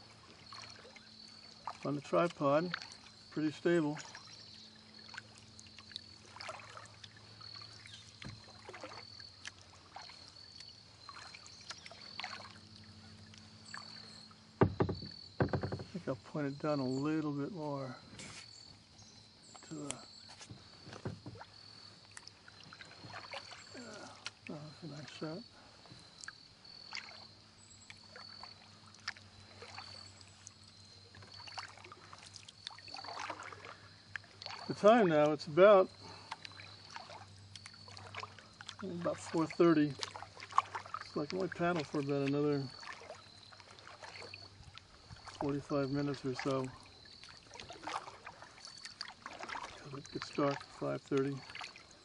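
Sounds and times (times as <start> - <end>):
kayak paddle splashing: 0.0 - 52.0
low thump: 14.6 - 16.1.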